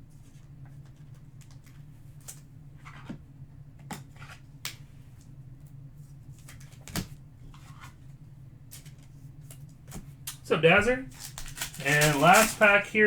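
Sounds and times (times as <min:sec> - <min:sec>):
steady low hum: 0:00.0 - 0:13.0
cards and wrappers clicking: 0:10.3 - 0:13.0.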